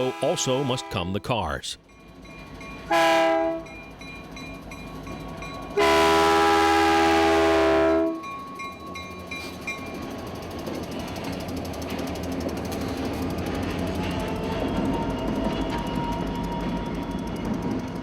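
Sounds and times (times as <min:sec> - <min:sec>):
locomotive air horn blasts: 0:00.0 - 0:01.3, 0:02.9 - 0:03.7, 0:05.8 - 0:08.2
train rumble: 0:00.0 - 0:18.0.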